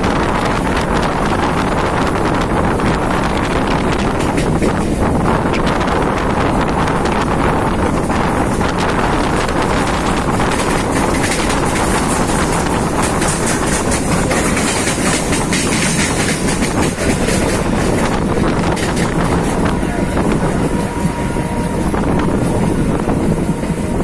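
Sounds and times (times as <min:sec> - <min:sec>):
train wheels rumbling on rail: 0:00.0 - 0:24.0
rapid clicks over rail joints: 0:03.4 - 0:05.7, 0:08.6 - 0:19.8.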